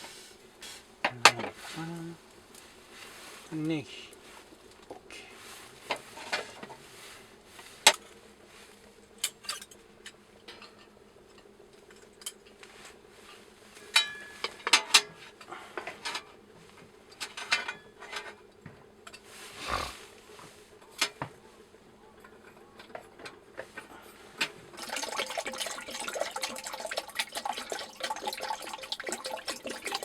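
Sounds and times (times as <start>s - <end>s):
cookware and utensils clinking: 24.8s - 30.0s.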